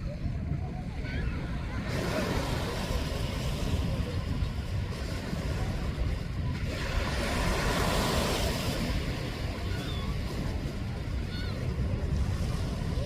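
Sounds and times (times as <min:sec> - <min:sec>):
waves washing on shore: 0:00.0 - 0:13.0
wind on microphone: 0:00.0 - 0:13.0.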